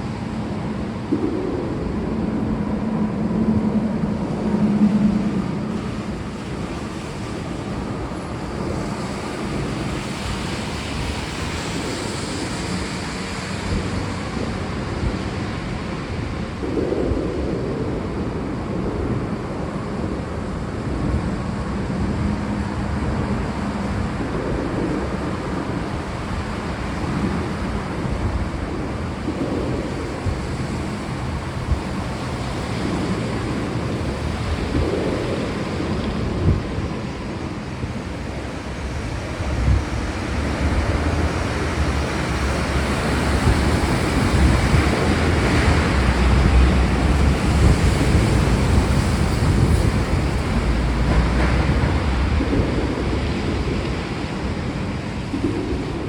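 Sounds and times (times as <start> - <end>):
steady rain: 0.0 - 56.0
thunder rumbling: 0.0 - 56.0.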